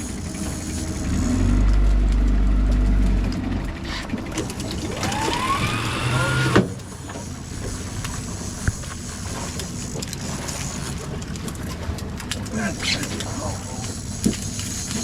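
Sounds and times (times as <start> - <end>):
boat motor rumbling: 0.0 - 15.0
rising whine: 0.4 - 6.7.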